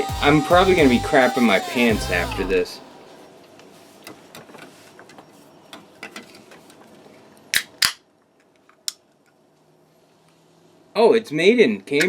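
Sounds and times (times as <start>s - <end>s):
small clicks and handling noise: 4.0s - 9.4s.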